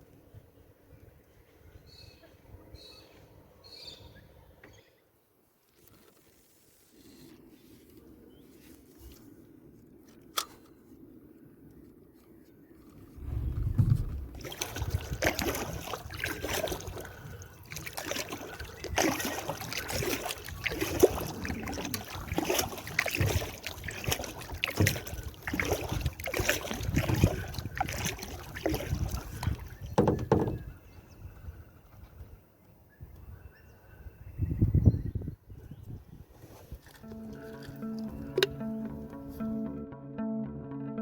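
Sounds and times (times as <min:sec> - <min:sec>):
paddle strokes in water: 0:12.2 - 0:30.8, 0:36.3 - 0:38.6.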